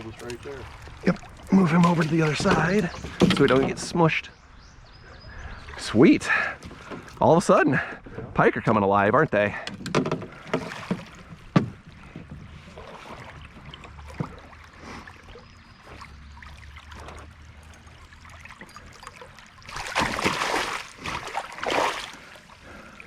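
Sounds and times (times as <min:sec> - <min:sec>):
water around canoe hull: 0:00.0 - 0:23.0
knocks against canoe hull: 0:01.8 - 0:03.9, 0:09.6 - 0:12.5.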